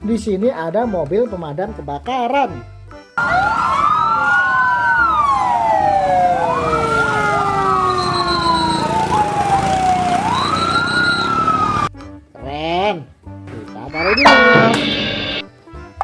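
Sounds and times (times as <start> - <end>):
fire engine siren wailing: 3.2 - 11.9, 14.0 - 15.4
short high beeping tone: 13.9 - 15.5.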